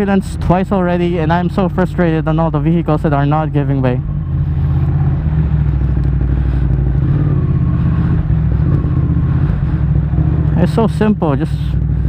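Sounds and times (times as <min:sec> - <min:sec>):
motorcycle engine humming: 0:00.0 - 0:12.0
steady rushing noise: 0:04.0 - 0:12.0.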